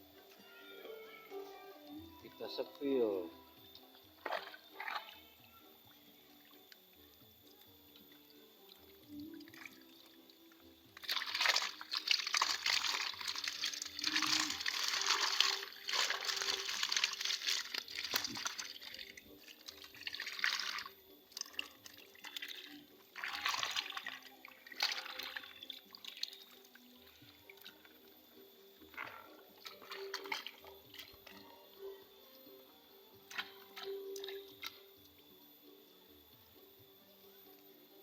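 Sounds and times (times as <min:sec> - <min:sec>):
water splashing and sloshing: 0:04.1 - 0:05.5, 0:08.1 - 0:28.1, 0:28.8 - 0:31.5, 0:33.3 - 0:34.8.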